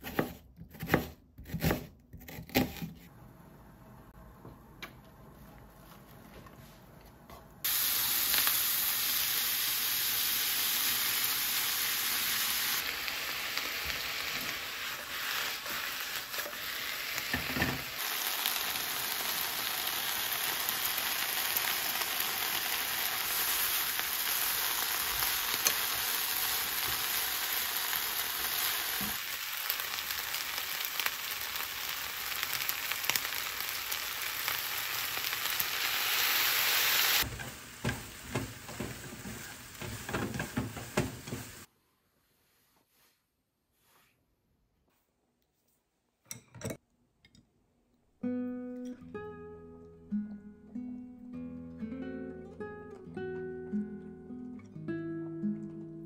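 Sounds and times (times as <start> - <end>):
food sizzling in frying pan: 7.6 - 41.7.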